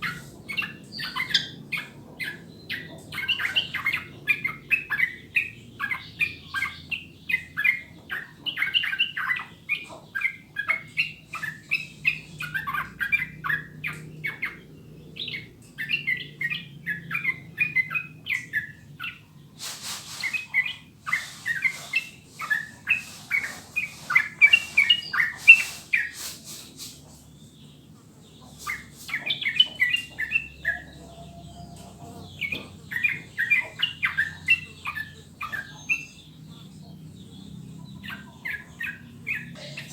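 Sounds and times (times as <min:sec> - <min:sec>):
bird singing chattering notes: 0:00.0 - 0:19.6, 0:20.2 - 0:39.9
hissing rustle: 0:19.6 - 0:27.2.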